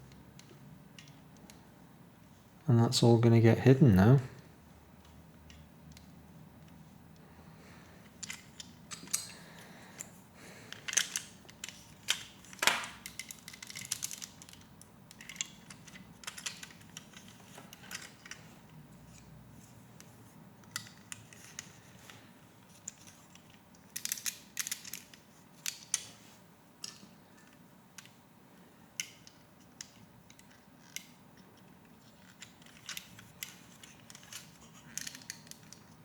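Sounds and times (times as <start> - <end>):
plastic pieces clicking and rattling: 10.7 - 18.4, 22.8 - 26.1, 29.0 - 36.0.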